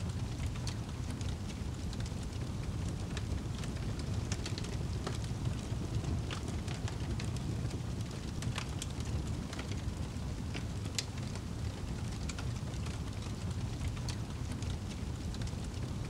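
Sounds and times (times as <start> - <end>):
low fire rumble: 0.0 - 16.0
wood fire crackling: 0.0 - 16.0.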